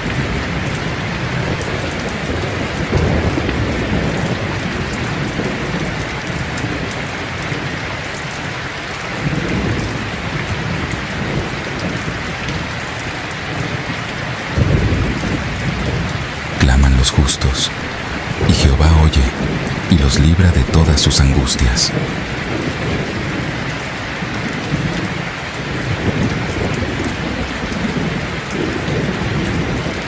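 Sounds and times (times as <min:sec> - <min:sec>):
heavy rain falling: 0:00.0 - 0:30.0
thunder rumbling: 0:14.6 - 0:16.6, 0:17.7 - 0:19.9.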